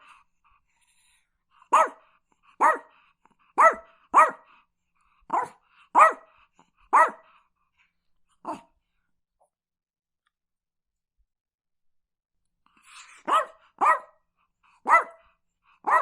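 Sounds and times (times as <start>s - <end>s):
dog barking: 1.7s - 4.6s, 5.3s - 7.3s, 8.4s - 8.7s, 13.1s - 14.2s, 14.8s - 16.0s.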